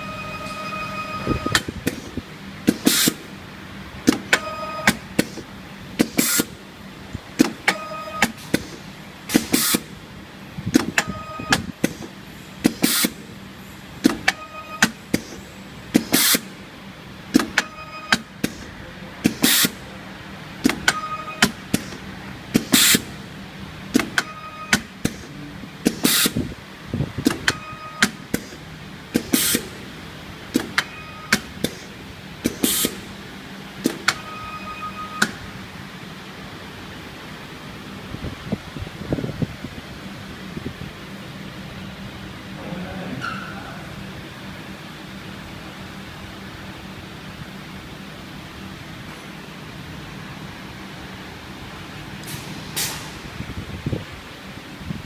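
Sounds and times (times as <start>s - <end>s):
brief steady tone: 0.0s - 1.7s, 4.4s - 5.0s, 7.7s - 8.4s, 11.0s - 11.6s, 14.3s - 15.0s, 17.6s - 18.2s, 20.9s - 21.5s, 24.2s - 24.9s, 27.5s - 28.1s, 30.8s - 31.4s, 34.1s - 35.4s
short hiss: 52.3s - 53.2s.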